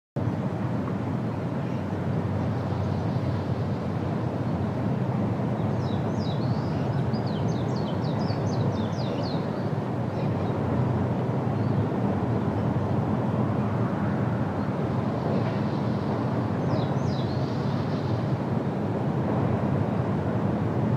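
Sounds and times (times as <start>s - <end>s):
low rumbling noise: 0.2s - 20.9s.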